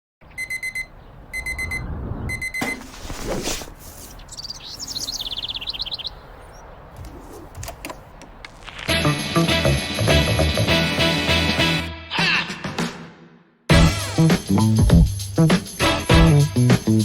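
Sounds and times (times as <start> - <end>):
fast warbling chirp: 0.3 - 2.7, 4.0 - 7.5
alarm clock beeping: 0.4 - 2.8
rustling: 2.6 - 5.2, 6.9 - 9.0.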